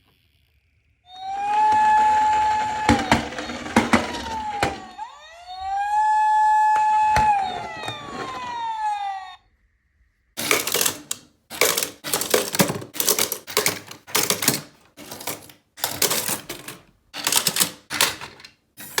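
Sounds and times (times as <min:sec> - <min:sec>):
toy cars rattling on plastic slide: 0:01.3 - 0:05.0, 0:10.4 - 0:19.0.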